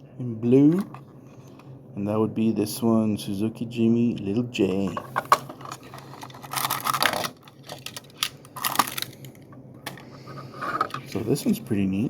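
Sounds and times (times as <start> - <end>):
plastic packaging rustling: 5.1 - 11.2.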